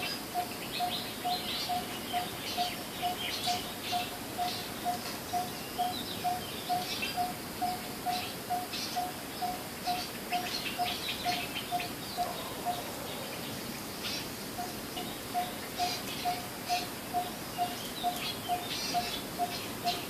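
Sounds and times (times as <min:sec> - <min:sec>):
bird hollow tuk call: 0:00.0 - 0:12.9, 0:14.6 - 0:20.0
other birds chirping: 0:00.0 - 0:20.0.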